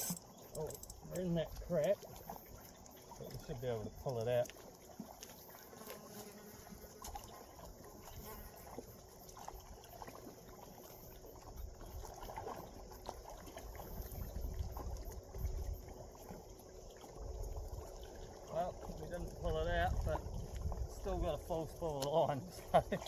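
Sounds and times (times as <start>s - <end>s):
small clicks: 0.0s - 2.0s
wind rumble on microphone: 13.7s - 16.1s, 18.7s - 23.0s.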